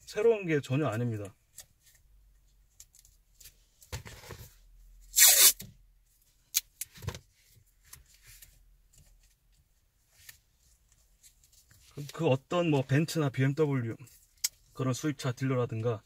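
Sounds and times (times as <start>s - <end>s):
tearing ripping sound: 5.1s - 5.6s.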